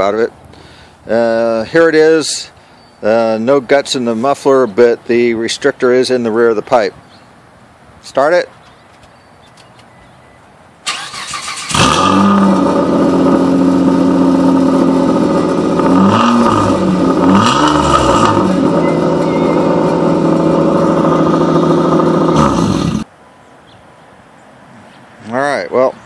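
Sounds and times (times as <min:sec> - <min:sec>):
car engine cranking: 0:10.8 - 0:23.1
engine revving: 0:10.9 - 0:23.1
loud car engine idling: 0:11.7 - 0:23.1.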